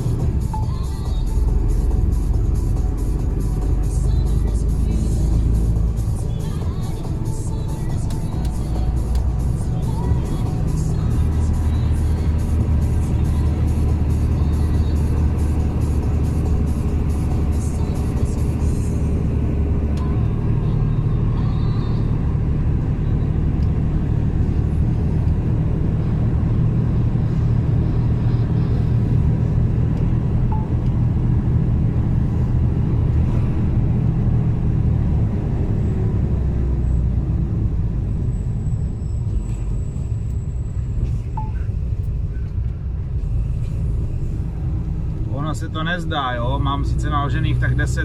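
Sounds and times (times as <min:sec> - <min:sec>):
truck diesel engine droning: 0:00.0 - 0:48.0.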